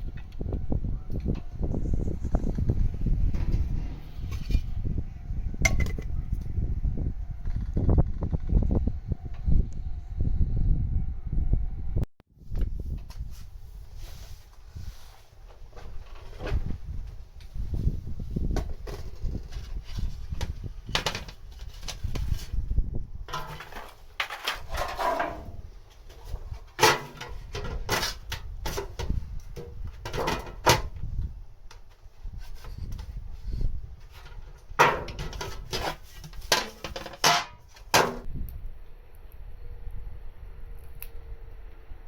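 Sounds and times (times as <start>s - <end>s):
low rumble: 0.0s - 12.1s.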